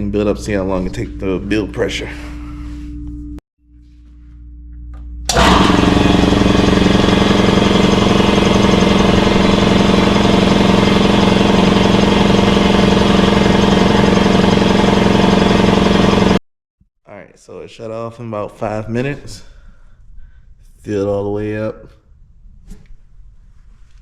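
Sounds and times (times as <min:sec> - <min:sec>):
air compressor pump running: 0:05.3 - 0:16.4.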